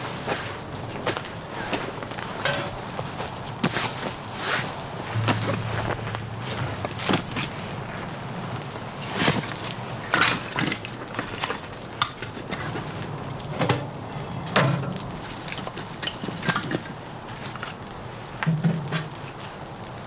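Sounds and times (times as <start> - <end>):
steady background hiss: 0.0 - 20.0
knocks and clatters: 5.2 - 8.3.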